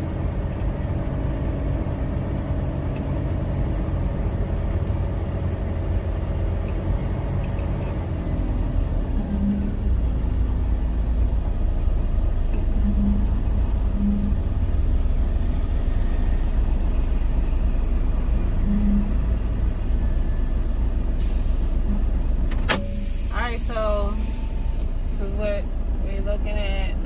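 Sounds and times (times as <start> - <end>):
truck diesel engine rumbling: 0.0 - 27.0
short hums: 9.0 - 10.4, 12.5 - 16.0, 18.3 - 19.8.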